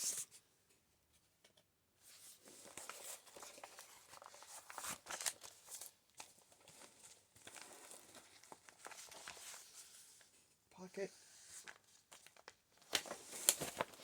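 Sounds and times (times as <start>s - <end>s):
paper pages rustling: 2.1s - 10.4s, 11.2s - 14.0s
paper crackle: 2.4s - 10.3s, 11.6s - 14.0s.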